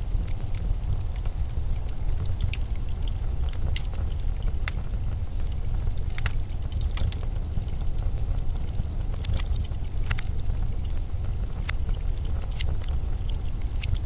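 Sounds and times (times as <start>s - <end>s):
deep storm wind rumble: 0.0s - 14.0s
faint hiss: 0.0s - 14.0s
light ticks and crackles: 0.0s - 14.0s.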